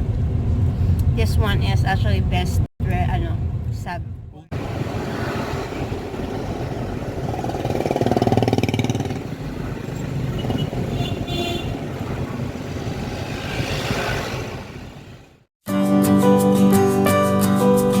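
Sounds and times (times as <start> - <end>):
street traffic noise: 0.0 - 15.5
vehicle engine passing: 4.5 - 15.5.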